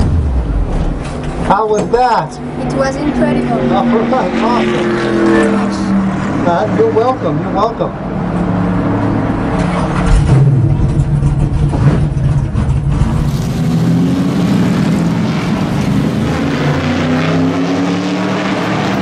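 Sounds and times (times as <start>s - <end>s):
car engine idling deep rumble: 6.9s - 13.8s.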